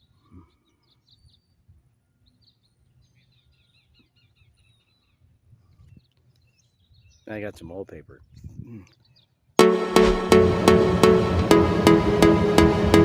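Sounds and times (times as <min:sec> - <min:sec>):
faint birdsong chirps: 0:00.0 - 0:07.6, 0:08.2 - 0:09.6.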